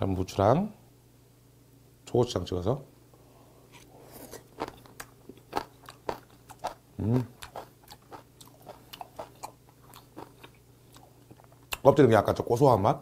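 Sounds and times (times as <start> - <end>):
wet chewing clicks and smacks: 4.6 - 11.9.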